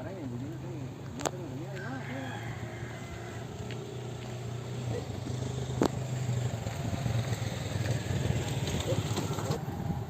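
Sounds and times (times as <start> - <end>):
bike rolling over rough trail: 3.5 - 10.0.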